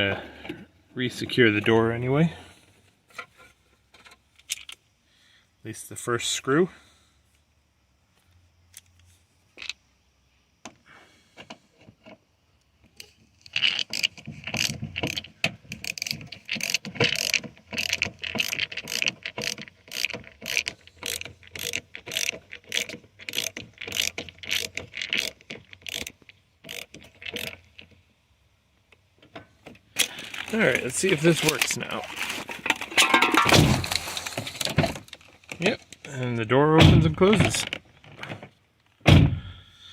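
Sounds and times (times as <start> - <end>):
ratcheting screwdriver clicking: 13.0 - 27.9.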